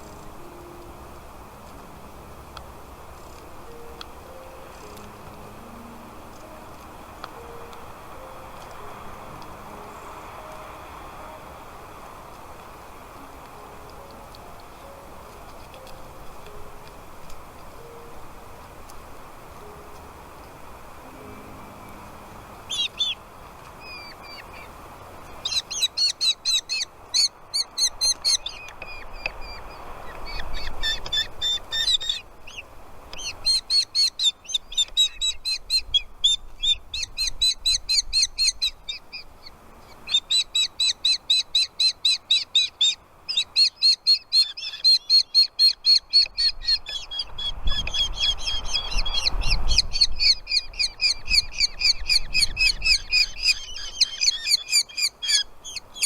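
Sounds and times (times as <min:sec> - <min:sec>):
nestling birds begging calls: 0:18.9 - 0:56.0.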